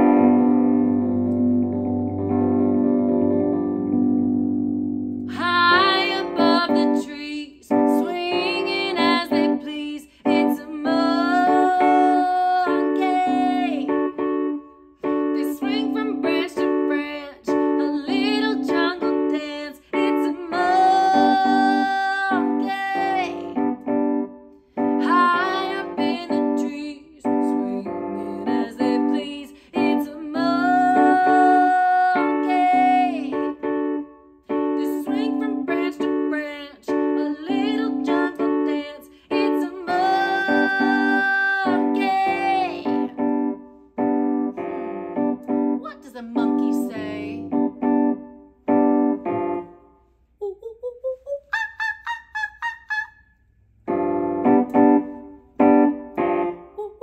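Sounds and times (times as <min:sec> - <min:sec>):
piano accompaniment: 0:00.0 - 0:50.0, 0:53.8 - 0:57.0
woman singing: 0:05.3 - 0:14.1, 0:15.2 - 0:23.6, 0:24.9 - 0:33.6, 0:34.5 - 0:43.2, 0:45.8 - 0:47.6, 0:50.4 - 0:52.1, 0:56.6 - 0:57.0.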